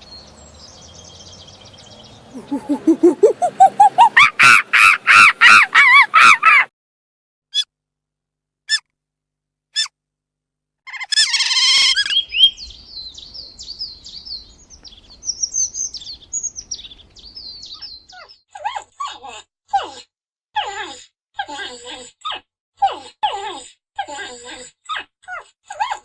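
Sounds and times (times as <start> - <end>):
songbird singing: 0.0 - 6.0, 11.3 - 18.3.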